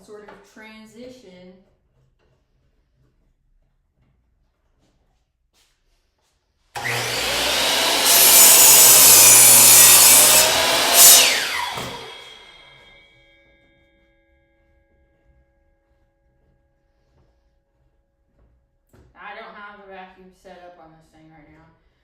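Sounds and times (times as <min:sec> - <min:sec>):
miter saw cutting wood: 0:06.8 - 0:13.0.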